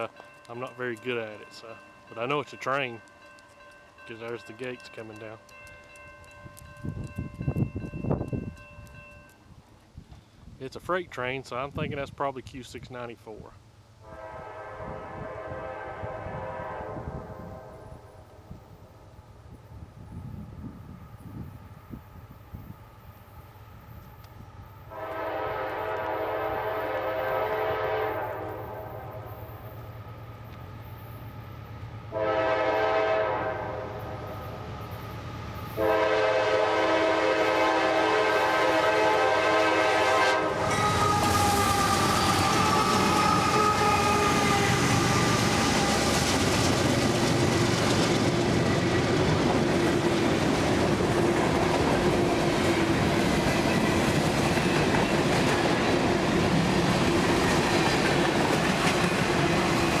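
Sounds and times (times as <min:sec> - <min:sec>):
train rumbling on rails: 0:00.0 - 0:09.8, 0:14.0 - 1:00.0
locomotive air horn blasts: 0:14.0 - 0:18.0, 0:24.9 - 0:29.4, 0:32.1 - 0:34.3, 0:35.7 - 0:46.1.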